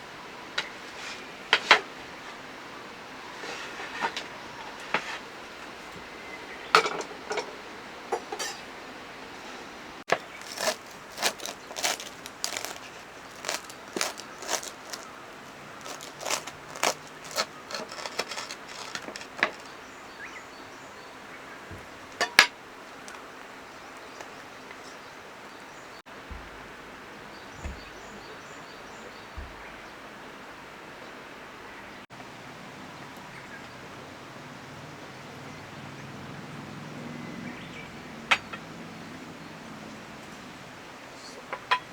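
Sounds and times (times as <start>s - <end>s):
camp dishes clinking: 6.7s - 8.7s, 10.1s - 19.9s, 21.7s - 23.3s, 41.5s - 41.9s
soft thumps: 26.2s - 27.0s, 27.6s - 28.2s, 29.3s - 29.8s.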